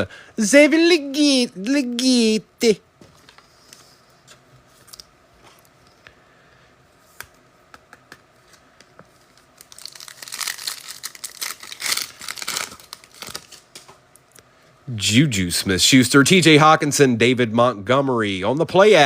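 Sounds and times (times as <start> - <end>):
foil wrapper tearing and crinkling: 9.2 - 13.9.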